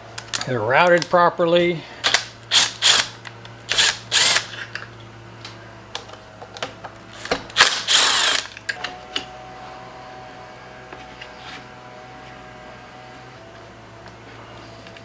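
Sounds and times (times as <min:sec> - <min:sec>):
hand tools ratcheting and clicking: 0:02.0 - 0:05.0, 0:06.0 - 0:09.3.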